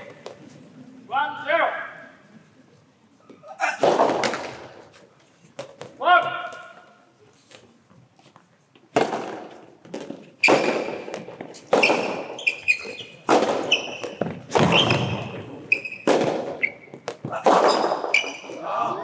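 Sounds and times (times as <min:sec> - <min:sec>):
rackets hitting tennis ball: 0:00.0 - 0:00.7, 0:03.3 - 0:18.9
shoes squeaking on court: 0:09.5 - 0:18.7.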